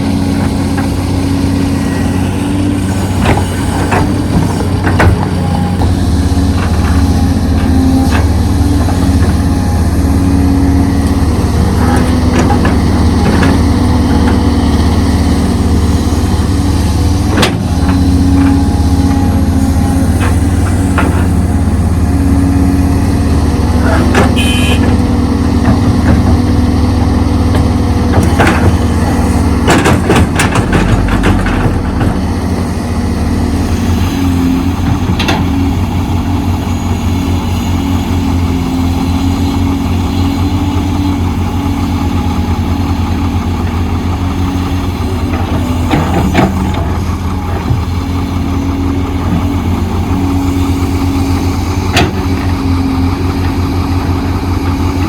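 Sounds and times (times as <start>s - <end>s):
diesel engine running: 0.0s - 55.0s
sharp knocks and clanks: 3.2s - 9.4s, 27.4s - 32.4s.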